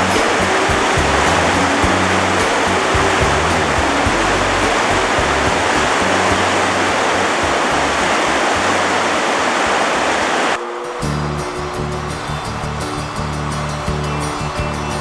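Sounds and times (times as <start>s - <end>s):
background music: 0.0s - 9.4s, 10.6s - 15.0s
river water rushing: 0.0s - 13.8s.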